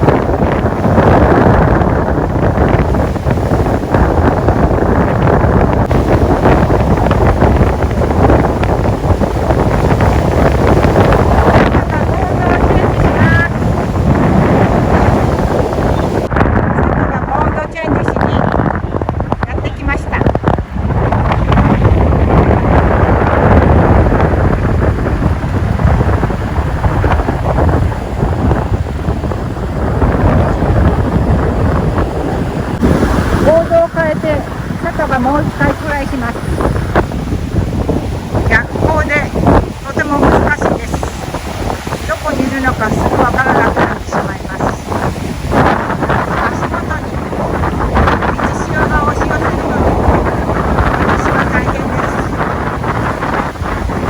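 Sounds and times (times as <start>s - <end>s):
strong wind buffeting microphone: 0.0s - 54.0s.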